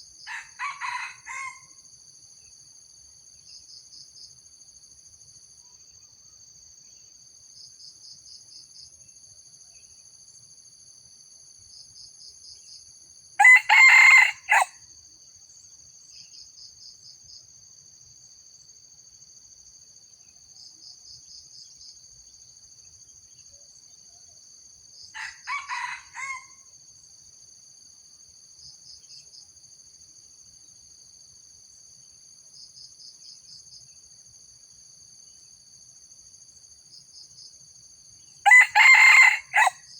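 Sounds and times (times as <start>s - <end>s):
insect chirps: 0.0s - 39.9s
rooster crowing: 0.3s - 1.8s, 13.4s - 14.8s, 25.2s - 26.7s, 38.4s - 39.9s.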